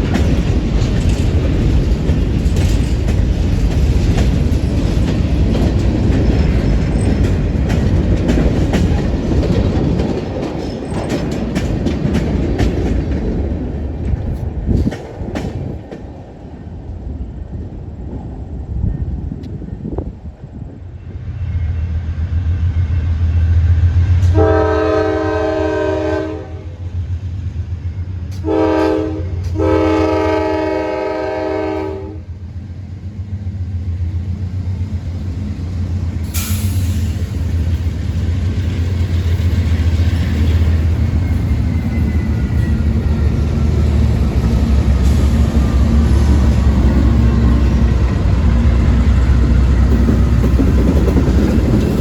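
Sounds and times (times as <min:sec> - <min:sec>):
rail clatter: 0:00.0 - 0:16.5, 0:34.4 - 0:52.0
train rumbling: 0:00.0 - 0:52.0
train air horn blasts: 0:24.2 - 0:26.8, 0:28.4 - 0:32.3.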